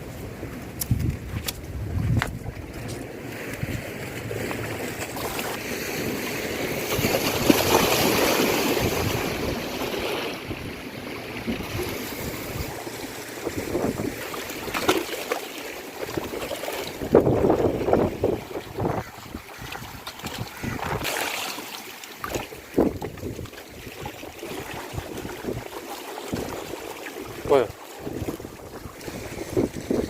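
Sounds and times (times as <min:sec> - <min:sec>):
wind on microphone: 0:00.6 - 0:05.6, 0:06.5 - 0:14.9, 0:16.0 - 0:21.2, 0:22.2 - 0:30.0
sea wave rushing in: 0:03.1 - 0:23.1.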